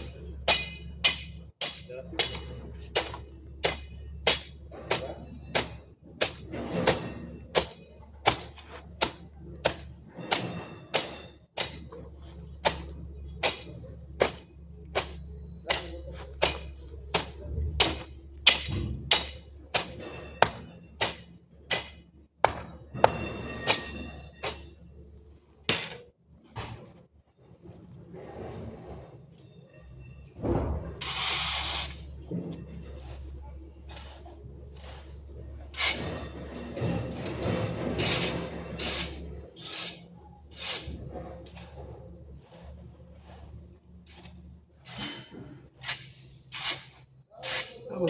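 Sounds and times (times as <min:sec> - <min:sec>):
hand tool striking: 0:00.0 - 0:24.7, 0:25.6 - 0:26.1, 0:31.0 - 0:41.9.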